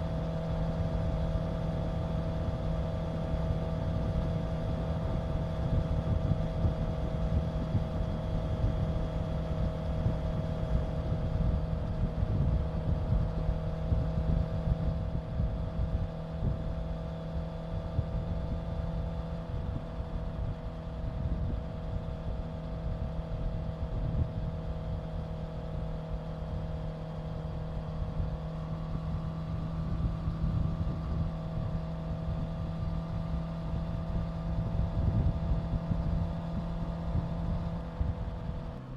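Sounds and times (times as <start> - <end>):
motorcycle engine cruising: 18.9 - 38.9.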